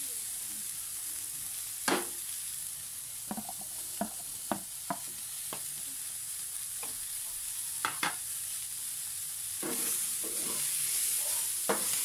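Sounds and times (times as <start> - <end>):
vegetables sizzling in a frying pan: 0.0 - 12.0
wooden spatula knocking and scraping: 3.3 - 5.1.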